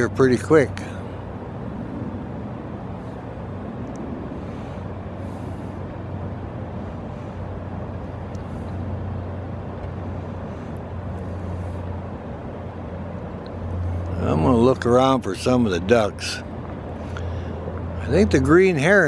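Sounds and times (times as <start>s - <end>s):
constant rumble: 0.0s - 19.0s
low mechanical hum: 0.0s - 19.0s.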